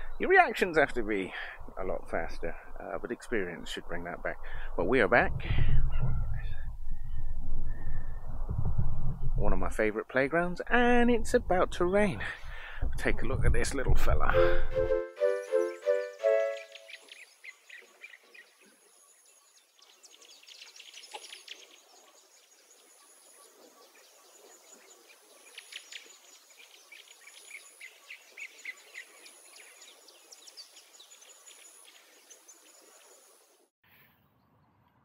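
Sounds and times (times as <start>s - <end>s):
faint high bird chirps: 15.2s - 22.2s
outdoor background noise: 16.2s - 35.0s.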